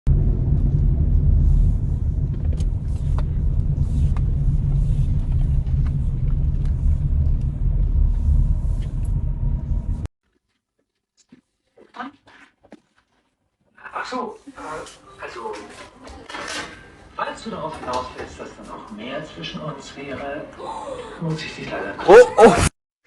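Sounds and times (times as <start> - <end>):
loud low rumble: 0.1 - 10.1.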